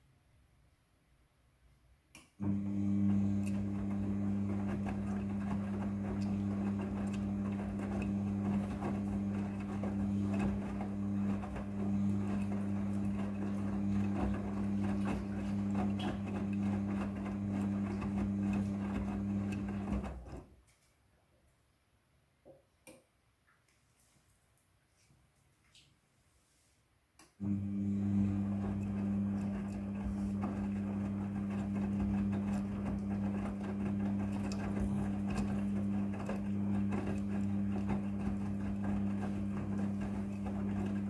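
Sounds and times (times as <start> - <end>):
washing machine running: 2.4 - 20.5, 27.4 - 41.0.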